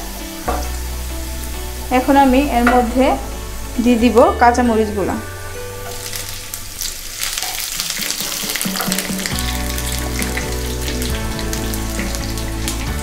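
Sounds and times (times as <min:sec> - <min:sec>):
background music: 0:00.0 - 0:13.0
food sizzling in hot oil: 0:00.0 - 0:13.0
sharp crackles: 0:06.0 - 0:11.5
wooden spoon stirring: 0:07.1 - 0:11.2.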